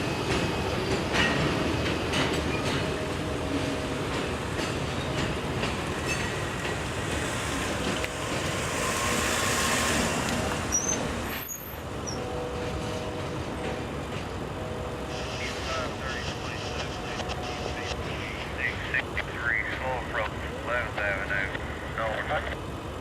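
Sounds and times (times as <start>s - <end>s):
freight cars rumbling: 0.0s - 23.0s
wheels squealing: 8.2s - 12.3s.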